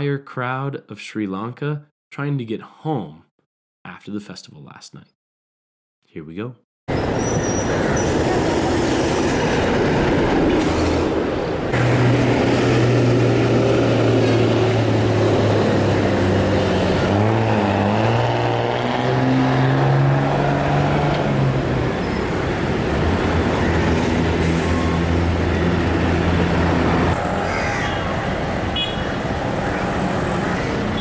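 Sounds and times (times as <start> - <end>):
passenger train rumbling: 6.9 - 31.0.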